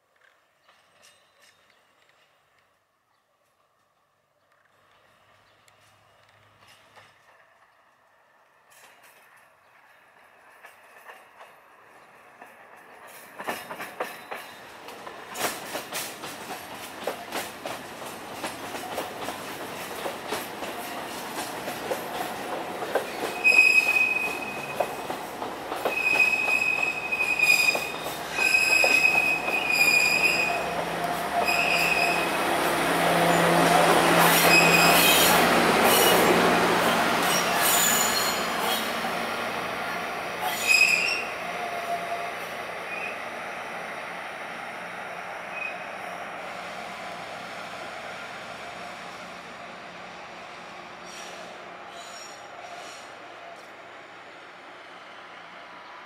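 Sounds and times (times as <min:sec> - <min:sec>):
train wheels clicking over rail joints: 0:04.5 - 0:39.0
high wheel squeal: 0:23.1 - 0:24.9, 0:25.9 - 0:30.7, 0:31.3 - 0:32.4, 0:34.2 - 0:36.3, 0:37.2 - 0:38.9, 0:40.4 - 0:42.3, 0:51.0 - 0:53.2.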